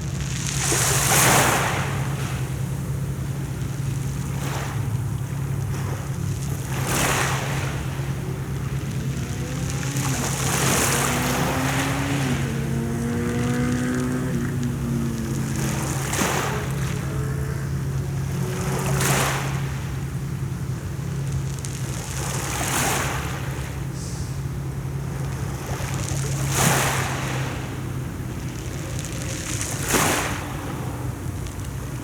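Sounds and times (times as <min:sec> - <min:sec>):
motor droning: 0:00.0 - 0:32.0
sea waves breaking: 0:00.0 - 0:32.0
steady low rumble: 0:01.8 - 0:22.3.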